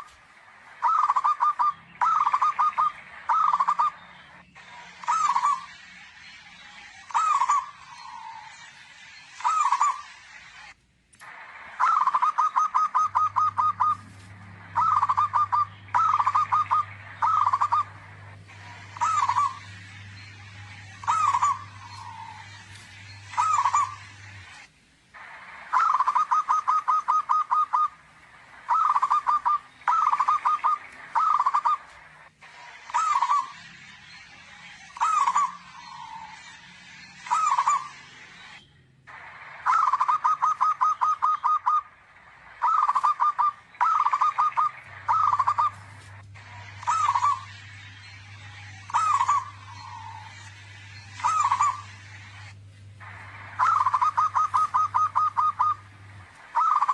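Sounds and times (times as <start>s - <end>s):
dove cooing: 0.8s - 4.0s, 4.9s - 5.7s, 7.1s - 8.5s, 11.8s - 19.7s, 21.0s - 24.6s, 25.6s - 28.0s, 28.7s - 31.9s, 39.6s - 41.9s, 42.6s - 45.8s, 46.7s - 47.5s, 51.2s - 51.9s, 53.1s - 55.9s, 56.5s - 56.9s.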